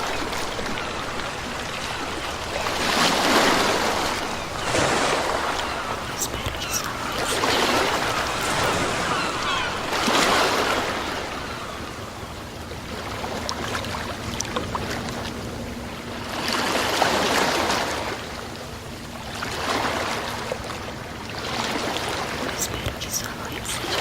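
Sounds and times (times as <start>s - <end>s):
crackling hiss of water: 0.0s - 13.8s
sea waves washing in: 0.0s - 24.0s.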